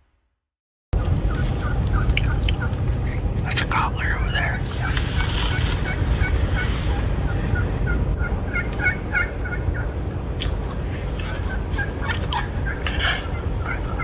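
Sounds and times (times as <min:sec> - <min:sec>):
steady low rumble: 0:01.0 - 0:14.0
wild turkey gobbling: 0:04.3 - 0:14.0.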